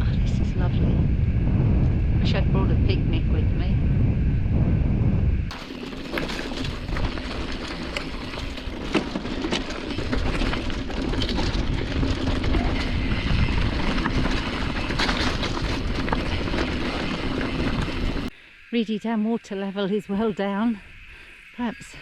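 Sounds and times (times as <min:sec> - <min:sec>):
wind and tyre noise: 0:00.0 - 0:18.4
bike knocking and rattling: 0:05.5 - 0:18.3.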